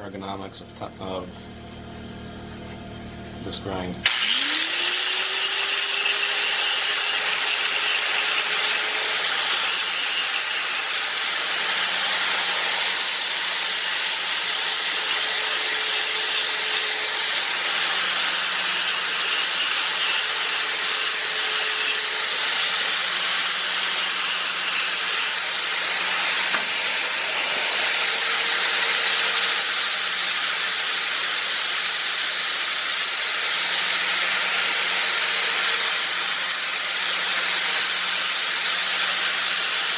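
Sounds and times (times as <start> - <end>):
angle grinder grinding metal: 3.5 - 39.9.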